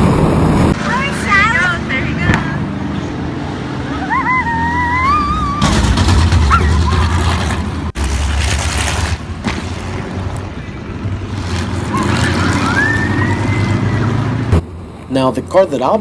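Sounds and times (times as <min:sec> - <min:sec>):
race car engines running loudly: 0:00.0 - 0:16.0.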